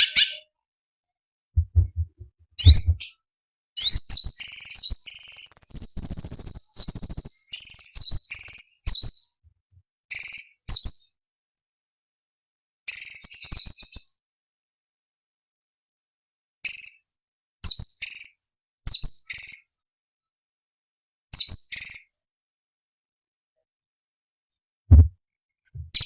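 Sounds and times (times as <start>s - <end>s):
low bumps: 1.6s - 3.1s, 24.9s - 25.2s, 25.8s - 26.0s
bird singing chattering and whistling: 2.6s - 3.1s.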